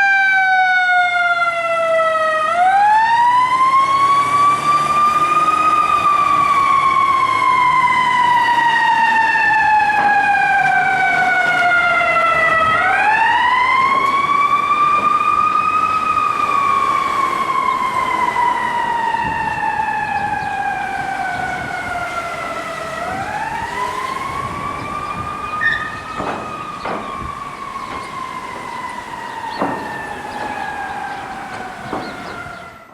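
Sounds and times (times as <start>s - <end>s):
fire engine siren wailing: 0.0s - 32.9s.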